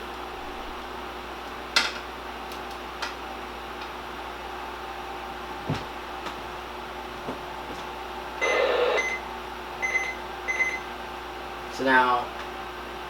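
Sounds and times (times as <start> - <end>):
radio hiss with high tone: 8.4 - 9.2.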